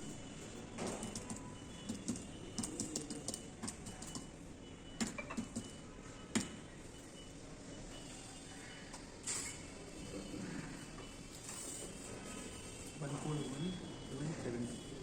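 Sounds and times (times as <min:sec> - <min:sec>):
keyboard typing clicks: 0:01.0 - 0:04.3.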